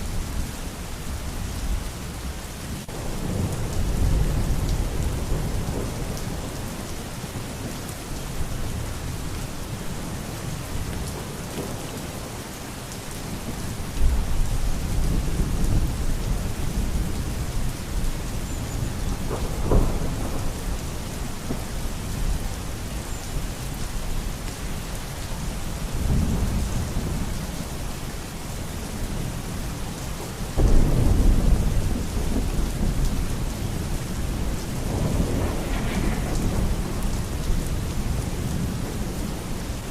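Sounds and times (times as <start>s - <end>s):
heavy rain falling: 0.0s - 39.9s
thunder rumbling: 2.8s - 12.4s, 13.2s - 22.9s, 30.6s - 39.9s.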